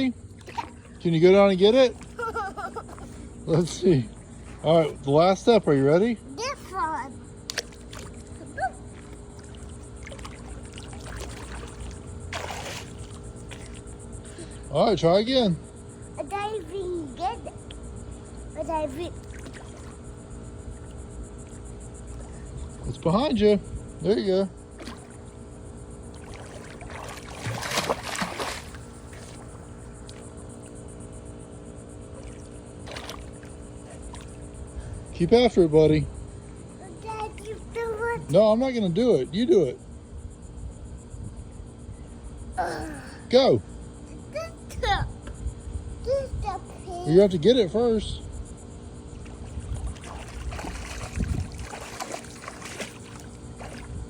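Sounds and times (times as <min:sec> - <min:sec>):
pool water sloshing: 0:00.0 - 0:38.9, 0:46.5 - 0:54.0
steady low hum: 0:00.0 - 0:54.0
water splash: 0:00.4 - 0:01.0, 0:09.0 - 0:13.9, 0:19.2 - 0:20.0, 0:26.1 - 0:30.2, 0:32.1 - 0:34.4, 0:49.2 - 0:54.0.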